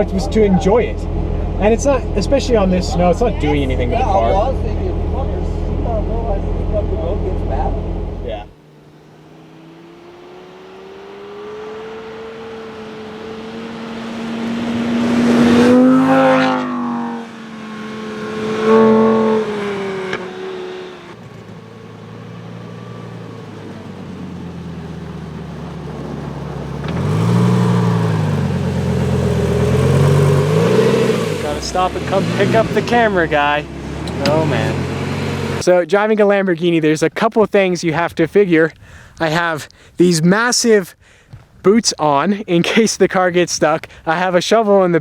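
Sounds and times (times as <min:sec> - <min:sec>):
sports car engine accelerating: 0:00.0 - 0:35.6.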